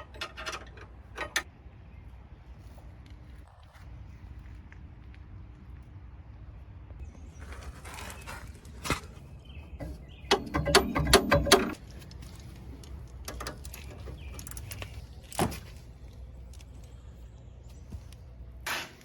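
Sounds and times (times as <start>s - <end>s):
knocks and clicks: 9.8s - 11.9s.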